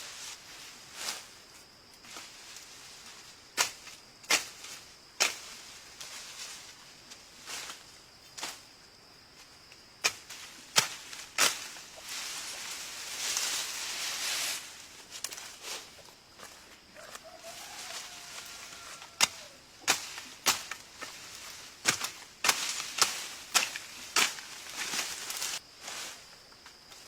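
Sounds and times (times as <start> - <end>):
rustling: 10.2 - 26.4.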